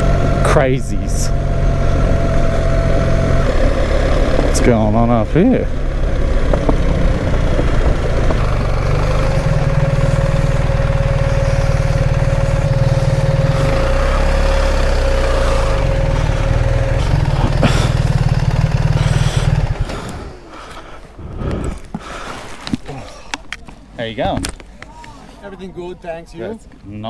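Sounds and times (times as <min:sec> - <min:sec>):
motorcycle engine running at low revs: 0:00.0 - 0:20.7
steady whine: 0:00.0 - 0:22.8.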